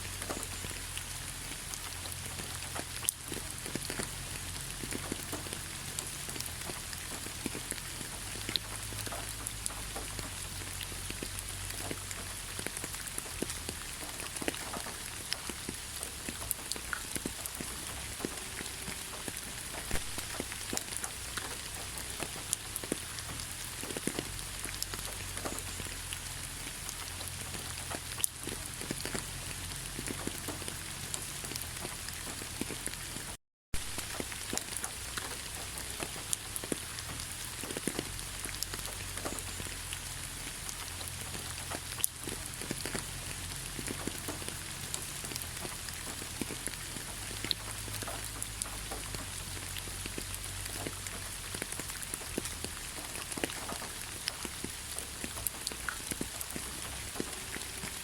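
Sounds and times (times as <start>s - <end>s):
rain falling through forest canopy: 0.0s - 58.0s
raindrops striking close by: 0.0s - 58.0s.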